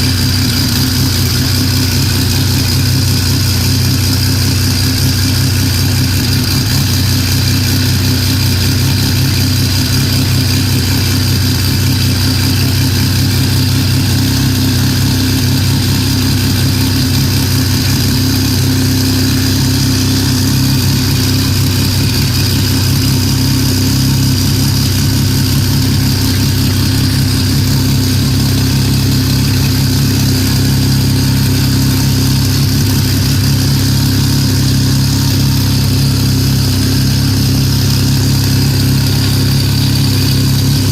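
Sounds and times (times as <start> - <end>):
race car engine idling loudly: 0.0 - 40.9.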